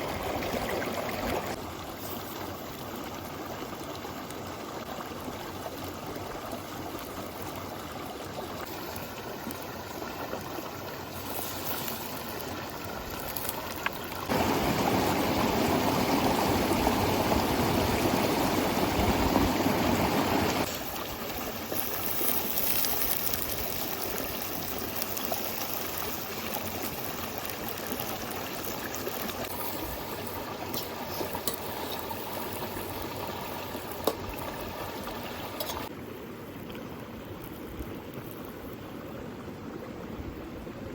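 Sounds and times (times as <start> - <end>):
river water flowing: 0.0 - 22.5.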